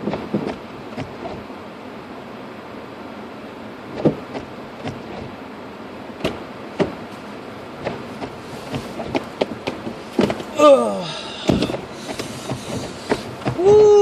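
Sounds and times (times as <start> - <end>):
sharp knocks and thumps: 0.0 - 1.4, 3.9 - 5.4, 6.2 - 7.0, 7.8 - 10.6, 11.4 - 13.9
road noise inside car: 0.0 - 14.0.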